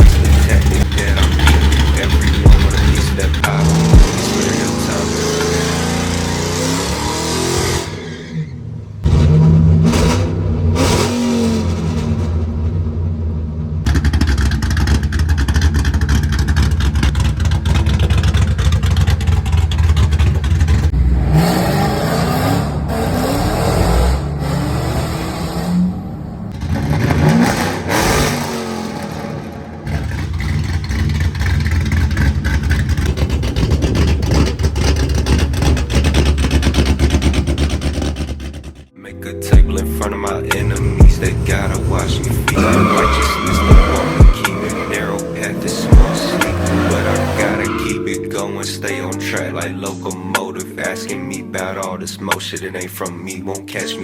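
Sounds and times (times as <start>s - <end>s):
car engines accelerating: 0.0s - 38.9s, 39.5s - 53.9s.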